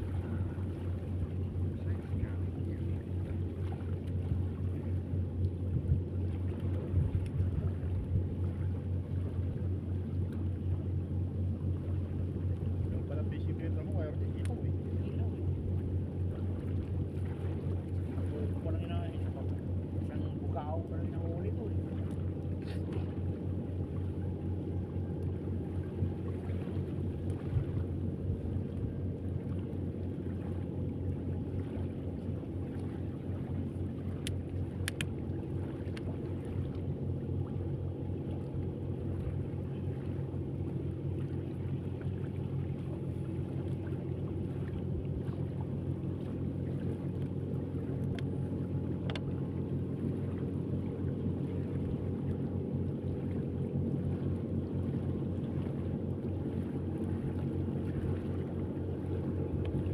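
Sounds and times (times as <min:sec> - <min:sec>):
boat engine running: 0:00.0 - 0:59.9
faint ticks: 0:34.1 - 0:35.2, 0:49.0 - 0:49.3.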